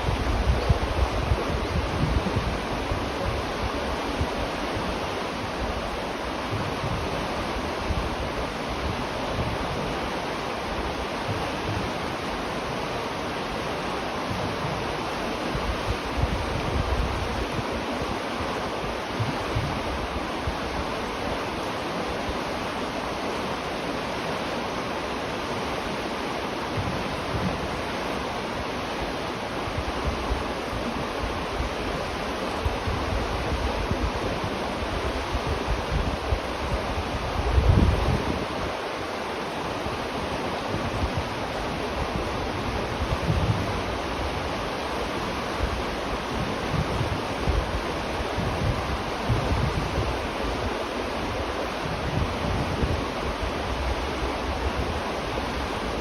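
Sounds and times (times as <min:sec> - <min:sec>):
low water rumble: 0:00.0 - 0:12.9, 0:26.6 - 0:38.8, 0:39.7 - 0:56.0
river water rushing: 0:00.0 - 0:56.0.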